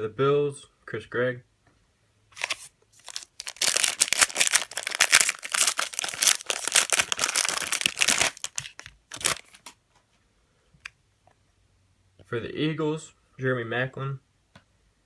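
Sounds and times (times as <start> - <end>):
wrapper tearing and crinkling: 2.4 - 9.8.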